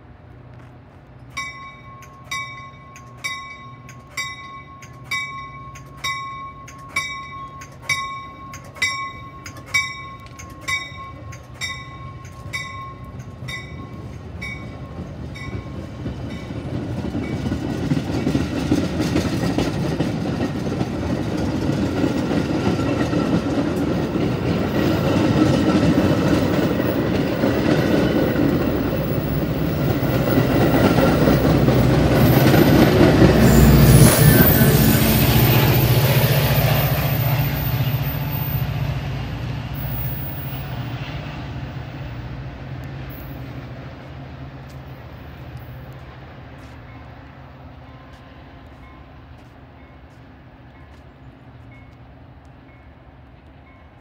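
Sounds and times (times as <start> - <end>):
train passing on rails: 0.0 - 54.0
bell dinging: 1.4 - 15.8.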